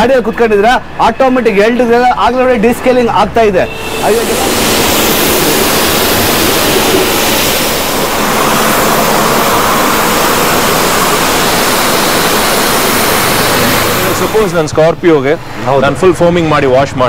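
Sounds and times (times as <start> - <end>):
pressure washer spraying water: 3.7 - 15.0.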